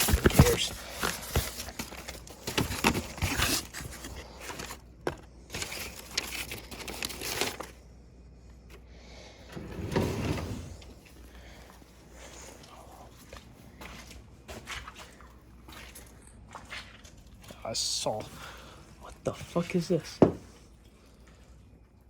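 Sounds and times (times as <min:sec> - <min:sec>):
footsteps and scuffs: 0:12.6 - 0:17.6.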